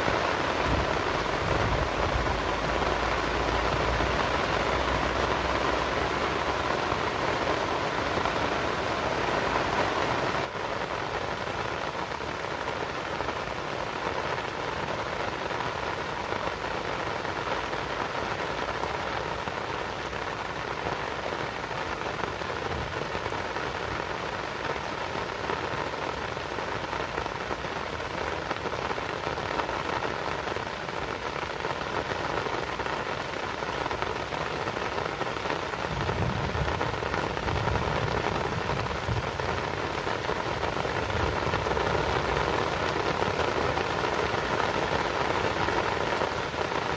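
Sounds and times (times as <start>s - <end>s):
steady rain patter: 0.0s - 46.9s.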